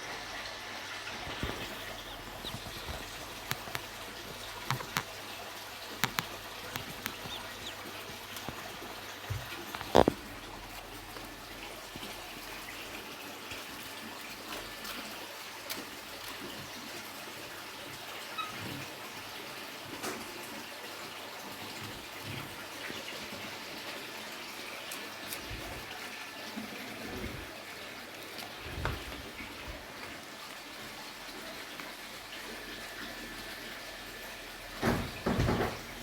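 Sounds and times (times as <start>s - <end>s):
running water rushing: 0.0s - 36.0s
faint clicks and knocks: 1.3s - 10.4s.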